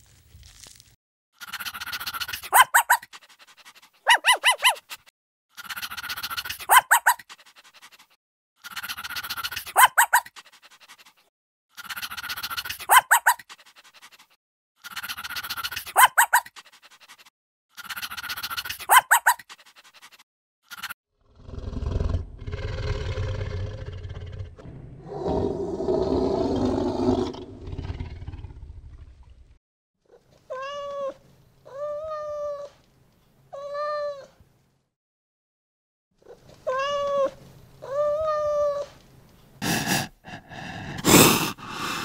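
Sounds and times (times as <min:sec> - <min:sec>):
animal yelping call: 0:01.4 - 0:03.2, 0:04.0 - 0:07.3, 0:08.6 - 0:10.4, 0:11.8 - 0:13.5, 0:14.8 - 0:16.6, 0:17.8 - 0:19.5.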